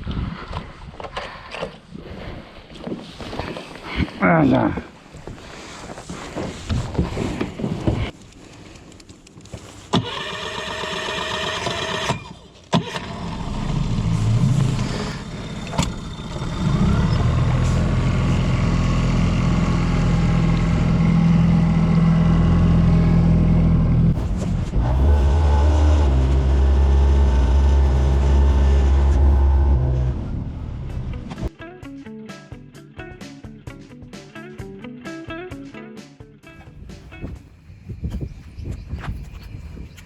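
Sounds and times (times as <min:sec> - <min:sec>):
engine starting and running: 0:06.9 - 0:31.5.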